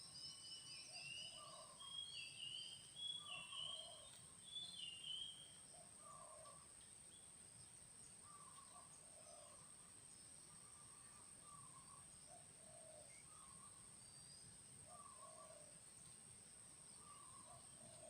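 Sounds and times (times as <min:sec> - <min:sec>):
faint dove cooing: 0:06.0 - 0:06.6, 0:10.8 - 0:13.6, 0:14.9 - 0:15.7, 0:17.0 - 0:18.0.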